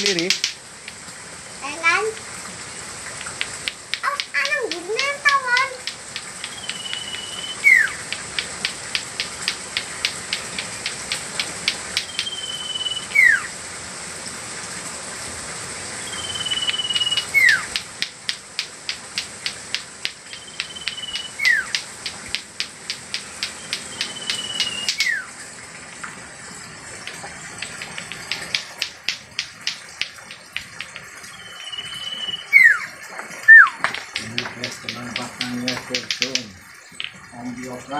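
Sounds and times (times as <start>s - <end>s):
rapid ticking: 0.0s - 1.0s, 3.2s - 12.4s, 16.6s - 25.2s, 27.0s - 31.3s, 33.7s - 37.9s
steady high hiss: 0.0s - 37.9s
bird whistling call: 6.4s - 8.0s, 12.0s - 13.5s, 16.0s - 17.7s, 20.3s - 21.8s, 23.5s - 25.3s, 31.3s - 32.9s, 33.5s - 33.9s.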